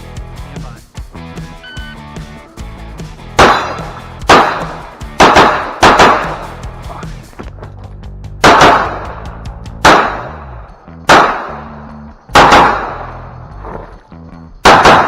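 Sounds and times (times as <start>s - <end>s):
background music: 0.0s - 15.0s
pistol shots echoing: 3.4s - 6.6s, 8.4s - 13.4s, 14.6s - 15.0s.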